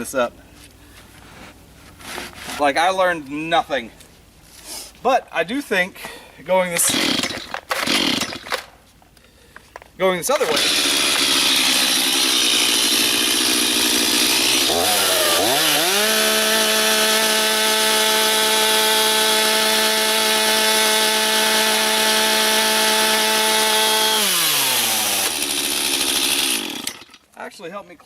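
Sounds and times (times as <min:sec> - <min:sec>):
chainsaw running at high throttle: 0:06.9 - 0:08.3, 0:10.4 - 0:27.1.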